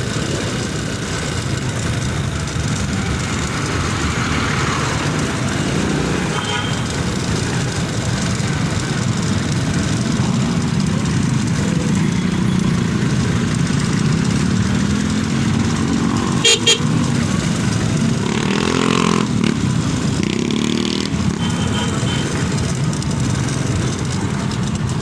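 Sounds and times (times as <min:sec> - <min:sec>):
motorcycle engine: 0:00.0 - 0:25.0
short horn beeps: 0:16.4 - 0:16.9.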